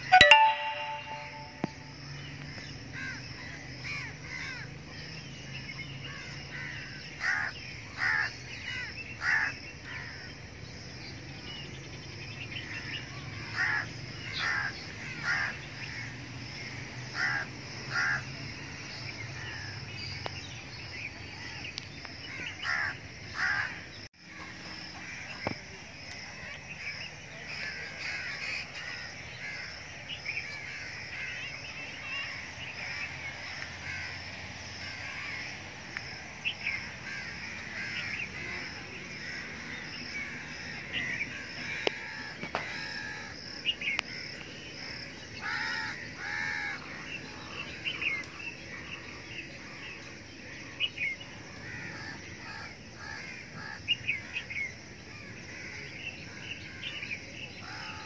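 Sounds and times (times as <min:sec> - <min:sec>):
small birds chirping: 0:34.9 - 0:58.0.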